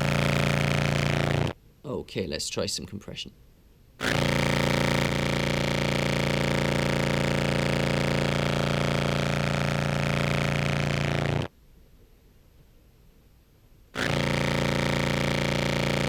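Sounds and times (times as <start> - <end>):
distorted low clarinet note: 0.0 - 1.5, 4.0 - 11.4, 14.0 - 16.0.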